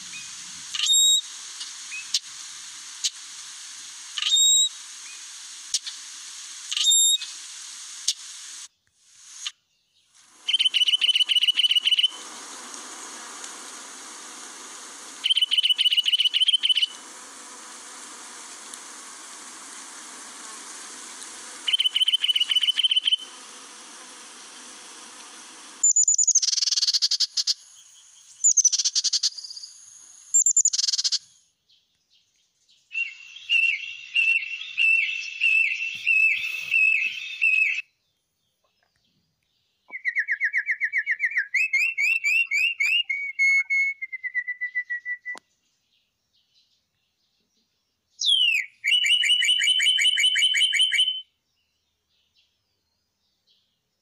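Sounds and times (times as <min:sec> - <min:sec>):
sharp high bird calls: 0:00.0 - 0:03.3, 0:03.9 - 0:08.6, 0:10.2 - 0:31.4, 0:32.9 - 0:37.8, 0:39.9 - 0:45.3, 0:48.2 - 0:51.3
steady hiss: 0:00.0 - 0:31.4, 0:33.0 - 0:37.8
titmouse chattering trills: 0:10.3 - 0:27.6
canary singing trills: 0:10.3 - 0:29.8, 0:32.9 - 0:37.8, 0:48.2 - 0:51.3.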